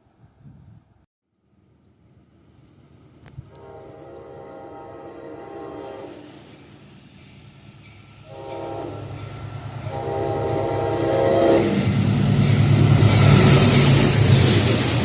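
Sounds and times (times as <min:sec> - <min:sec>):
train engine rumble: 0:01.7 - 0:15.0
train wheel noise: 0:01.9 - 0:15.0
train horn blasts: 0:03.4 - 0:06.6, 0:08.2 - 0:12.0.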